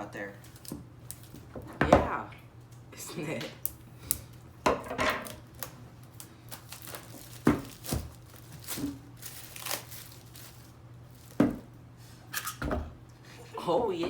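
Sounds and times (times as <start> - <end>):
cardboard tearing and crinkling: 5.3 - 11.4.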